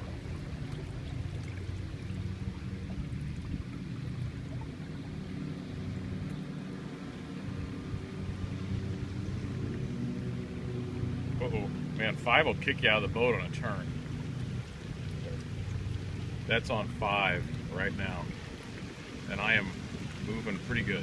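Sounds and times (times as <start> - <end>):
wind on microphone: 0.0 - 6.3, 14.4 - 21.0
water rushing along hull: 0.0 - 21.0.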